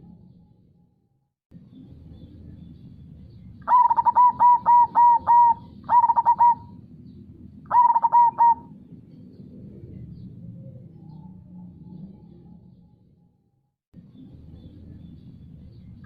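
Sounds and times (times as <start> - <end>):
dove cooing: 3.6 - 6.8, 7.7 - 8.8.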